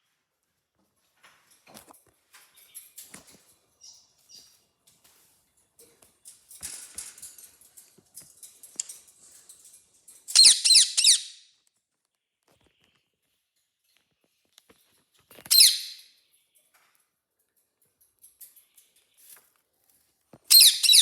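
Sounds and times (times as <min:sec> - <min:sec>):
pet birds chirping and squeaking: 0:02.5 - 0:04.6, 0:08.7 - 0:11.5, 0:15.3 - 0:16.7, 0:20.4 - 0:21.0
rapid high bird chirps: 0:10.4 - 0:11.4, 0:20.5 - 0:21.0.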